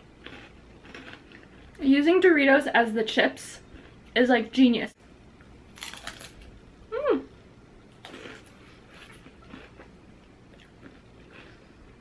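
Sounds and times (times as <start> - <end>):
chewing chip with crunches: 0.2 - 1.5, 5.8 - 6.5, 8.0 - 12.0
woman humming approval: 6.9 - 7.3.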